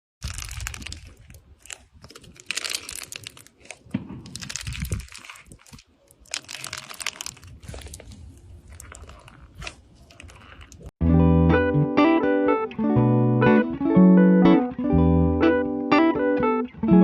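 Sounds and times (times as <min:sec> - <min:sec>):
crunching and crinkling: 0:00.2 - 0:10.9.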